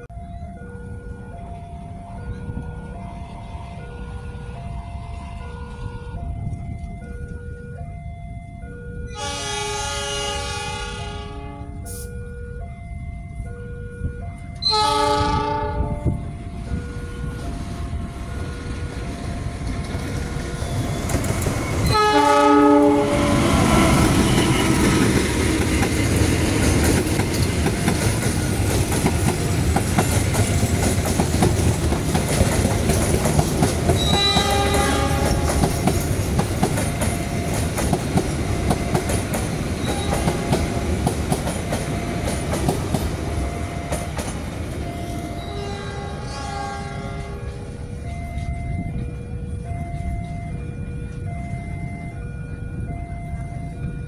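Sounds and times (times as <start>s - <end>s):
train rumbling: 0.0s - 54.0s
locomotive horn blasts: 3.4s - 6.4s, 9.1s - 12.2s, 14.6s - 16.4s, 21.8s - 25.1s, 34.0s - 35.6s, 45.0s - 47.9s
electronic warning tone: 16.0s - 26.3s, 43.2s - 54.0s
wheels clacking over rail joints: 18.4s - 45.8s.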